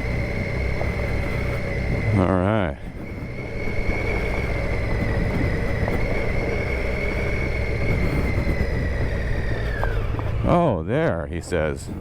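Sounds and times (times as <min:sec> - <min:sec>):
high whine: 0:00.0 - 0:12.0
motorcycle engine running: 0:00.0 - 0:12.0.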